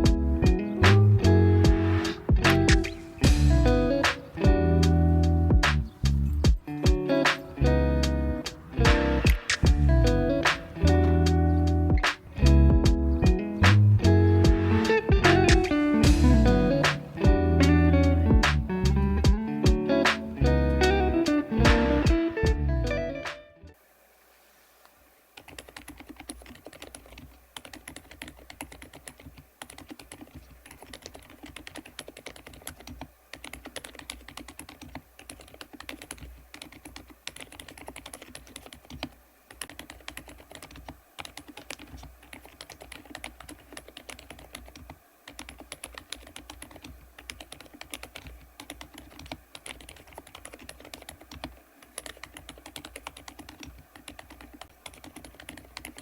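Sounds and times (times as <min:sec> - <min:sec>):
mechanical keyboard typing: 0:25.4 - 0:56.0.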